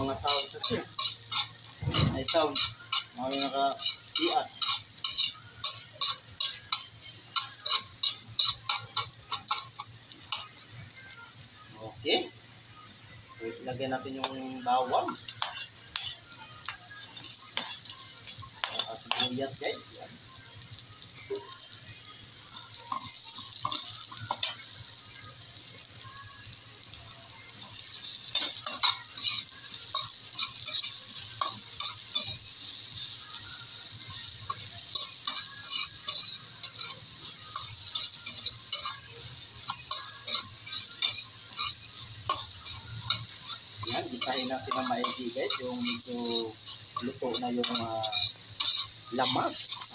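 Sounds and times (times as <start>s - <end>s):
metal spatula scraping a wok: 0.0s - 10.6s, 14.9s - 16.3s, 34.0s - 49.9s
onions sizzling in hot oil: 0.0s - 49.9s.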